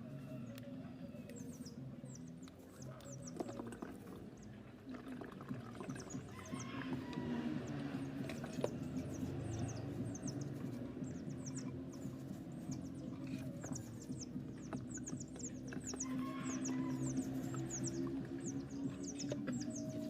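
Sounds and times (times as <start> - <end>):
low steady hum: 0.0 - 20.0
small birds chirping: 0.0 - 20.0.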